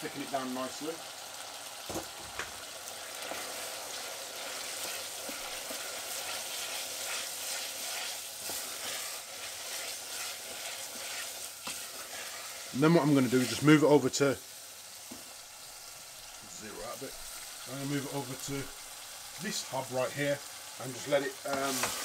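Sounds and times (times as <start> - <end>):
meat sizzling in a saucepan: 0.0 - 22.0
wooden spoon scraping a pan: 3.2 - 13.8, 21.0 - 22.0.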